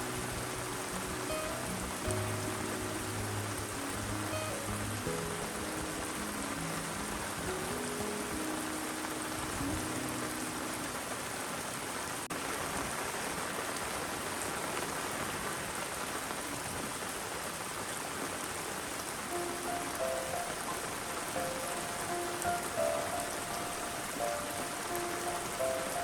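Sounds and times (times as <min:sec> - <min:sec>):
low held notes: 0:00.0 - 0:11.2
steady rain falling: 0:00.0 - 0:26.0.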